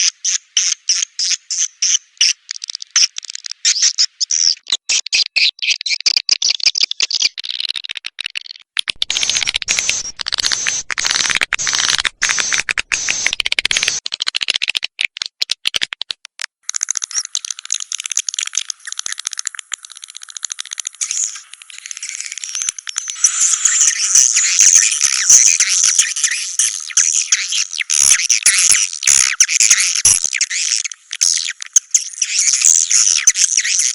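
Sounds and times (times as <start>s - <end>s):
swiftlet calls twittering: 9.0s - 14.0s.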